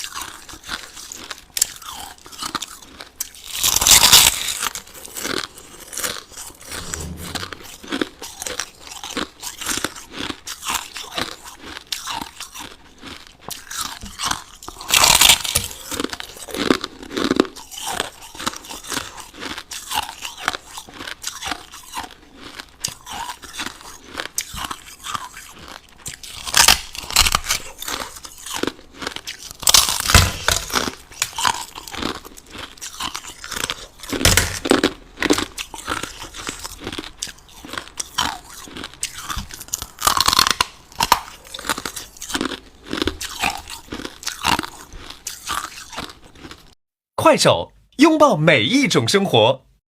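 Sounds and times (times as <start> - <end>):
crushed ice being chewed: 0.0 - 46.8.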